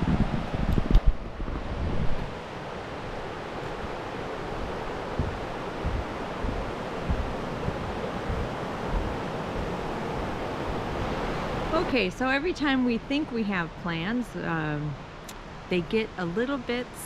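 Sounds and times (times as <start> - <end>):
river rushing: 0.0 - 12.9
wind buffeting microphone: 0.0 - 13.3.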